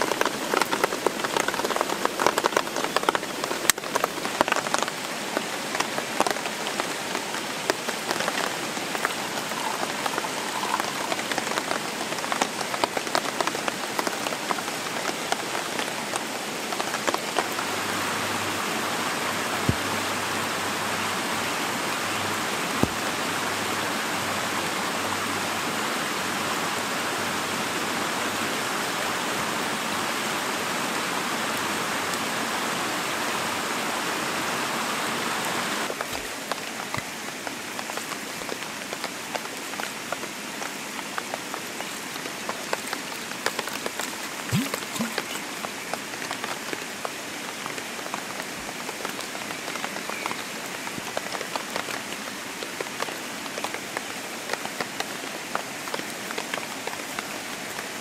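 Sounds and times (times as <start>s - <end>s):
rain drops ticking on leaves: 0.0s - 58.0s
steady hiss of rain: 0.0s - 58.0s.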